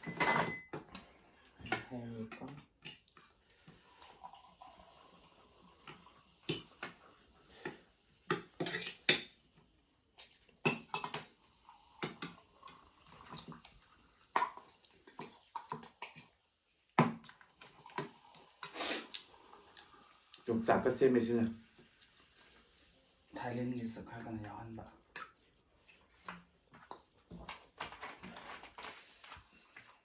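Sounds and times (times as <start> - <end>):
utensils clinking on dishes: 0.0 - 1.0, 8.3 - 9.3.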